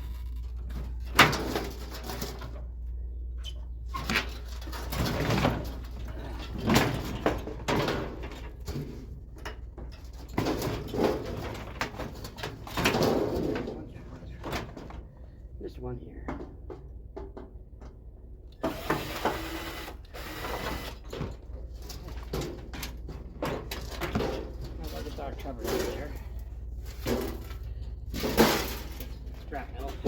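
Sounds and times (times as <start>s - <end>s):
sheet metal parts clattering: 3.9s - 15.0s, 21.2s - 30.0s
steady low hum: 20.0s - 30.0s.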